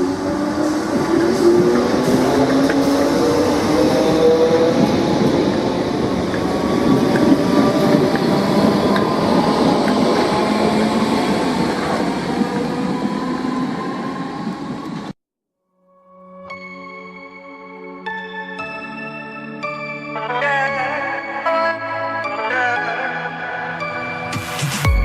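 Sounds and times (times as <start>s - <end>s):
train wheels rumbling on rail: 0.0s - 15.1s.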